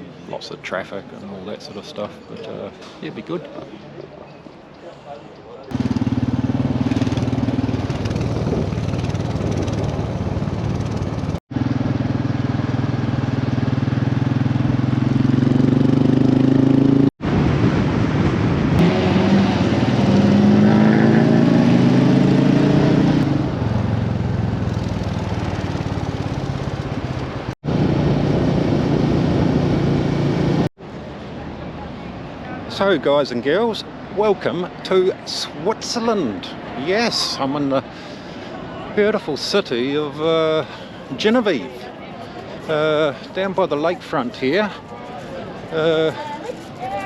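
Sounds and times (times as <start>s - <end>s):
motorcycle engine accelerating: 5.7s - 30.7s.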